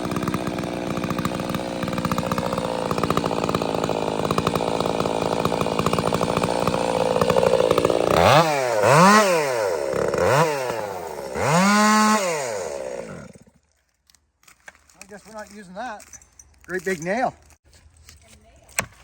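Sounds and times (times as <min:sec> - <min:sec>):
chainsaw revving: 0:00.0 - 0:13.6.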